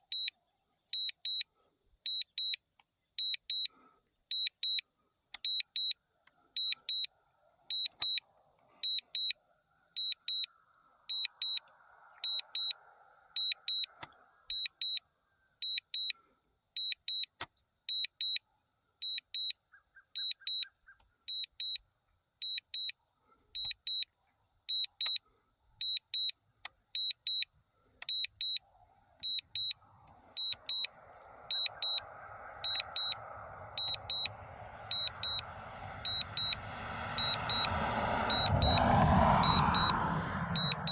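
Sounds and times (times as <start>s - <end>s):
high double beep alarm: 12.2s - 12.8s, 29.2s - 38.7s
rush of noise: 29.2s - 40.9s.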